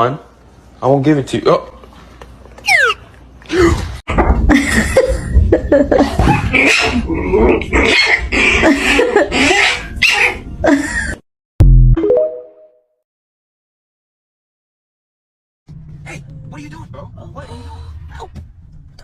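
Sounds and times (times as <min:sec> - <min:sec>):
dog grumbling and moaning: 0:06.2 - 0:10.6.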